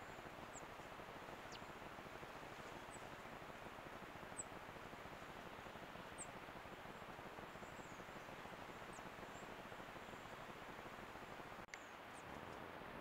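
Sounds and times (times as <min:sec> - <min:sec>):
microphone hiss: 0:00.0 - 0:13.0
small bird chirps: 0:01.5 - 0:01.8.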